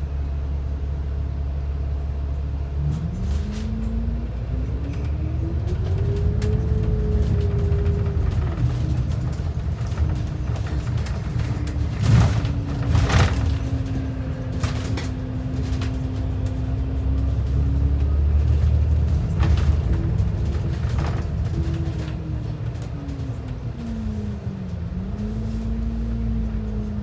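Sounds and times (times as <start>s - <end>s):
bus engine and road rumble: 0.0s - 27.0s
knocks and rattles: 5.7s - 23.3s.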